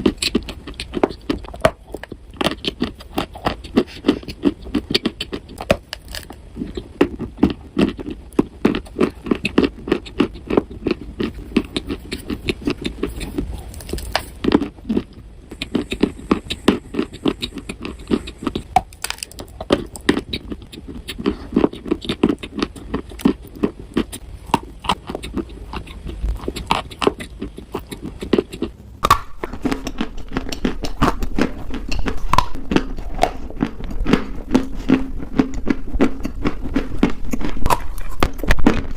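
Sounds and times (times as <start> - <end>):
dried clay crushed and crumbling: 10.6 - 16.4, 17.0 - 21.4.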